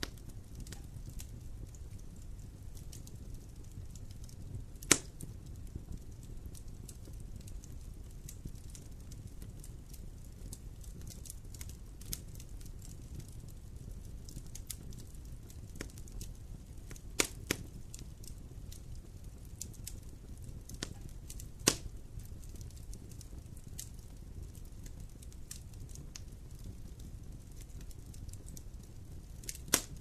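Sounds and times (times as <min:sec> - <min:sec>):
campfire crackling: 0:00.0 - 0:30.0
flame rumbling: 0:00.0 - 0:30.0
sharp wood pops: 0:04.9 - 0:05.1, 0:21.6 - 0:21.8, 0:29.6 - 0:30.0.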